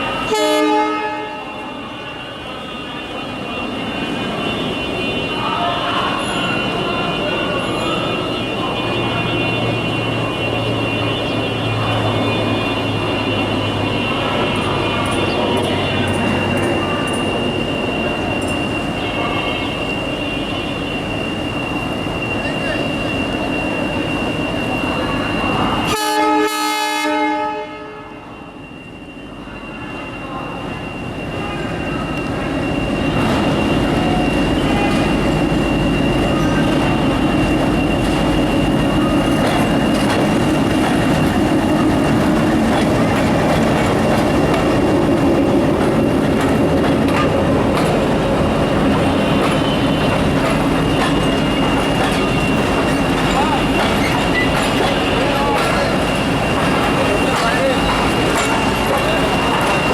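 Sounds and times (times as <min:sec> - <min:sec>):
train rumbling past: 0:00.0 - 0:59.9
train horn: 0:00.2 - 0:01.8, 0:25.8 - 0:28.3
wheels clattering on rails: 0:33.2 - 0:59.9.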